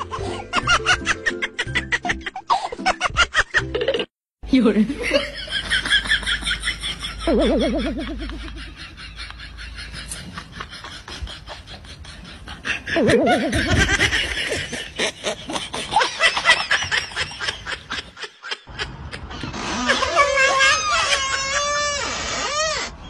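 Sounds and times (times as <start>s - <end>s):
people snickering: 5.0s - 20.9s.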